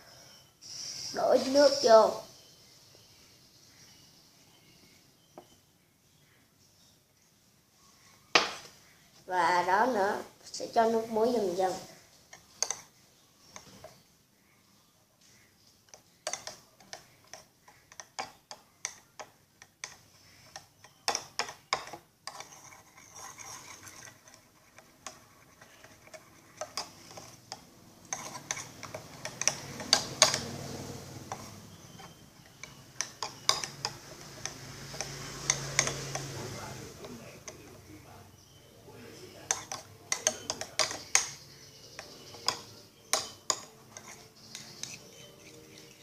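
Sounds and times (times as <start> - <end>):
wet slime stirring: 11.6 - 14.0, 15.9 - 37.8, 39.3 - 46.0.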